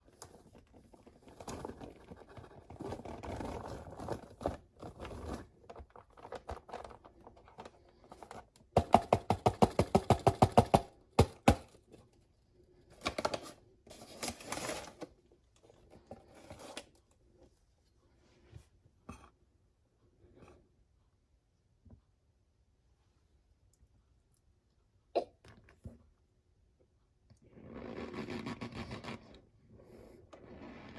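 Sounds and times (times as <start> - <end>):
cornstarch crunching: 27.5 - 29.4.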